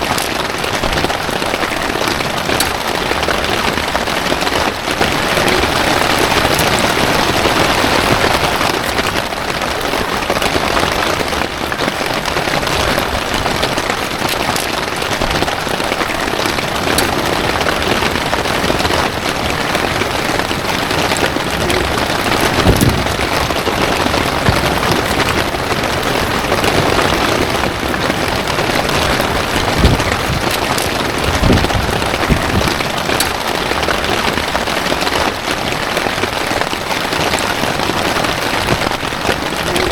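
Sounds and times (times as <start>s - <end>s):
heavy rain: 0.0s - 39.9s
dull low thumps: 21.4s - 26.9s.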